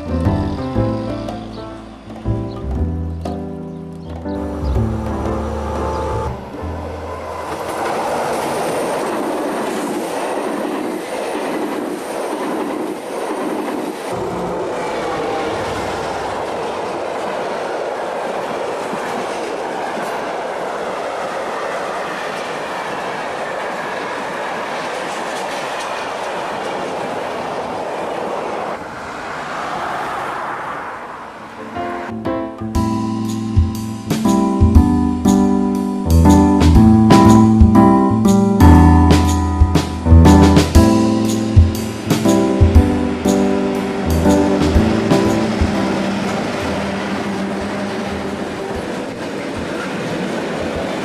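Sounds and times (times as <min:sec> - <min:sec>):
freight train wheels clattering: 0:32.8 - 0:51.0.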